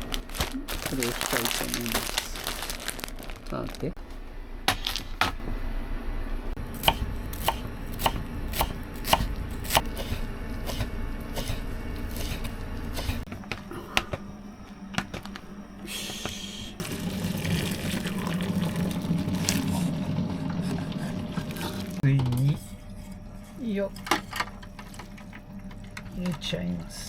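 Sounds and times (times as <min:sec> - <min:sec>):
knife chopping on cutting board: 0:06.8 - 0:13.2.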